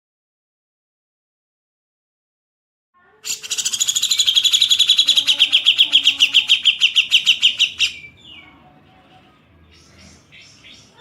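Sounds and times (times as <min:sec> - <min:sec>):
songbird harsh rasping trill: 0:03.2 - 0:08.6.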